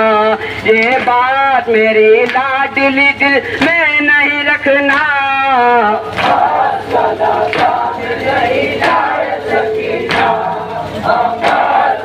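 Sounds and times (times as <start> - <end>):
men chanting in chorus: 0.0 - 12.0
rhythmic chest-beating: 0.0 - 12.0.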